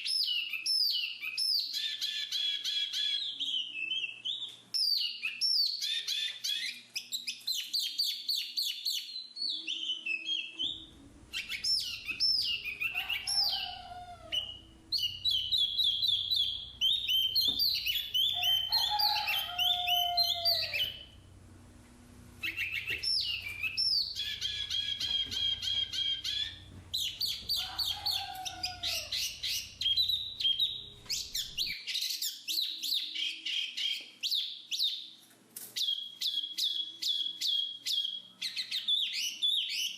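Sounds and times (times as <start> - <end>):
bird slurred whistles: 9.6 - 21.2, 22.4 - 31.8
bird chattering and trilling: 10.6 - 21.2, 22.4 - 32.4.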